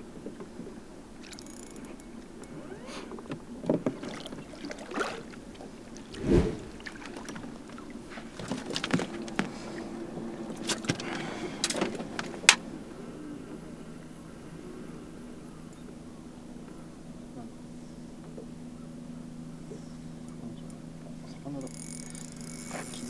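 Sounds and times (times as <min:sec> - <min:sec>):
knocks and clicks on boat: 0:00.4 - 0:05.5, 0:07.0 - 0:12.7.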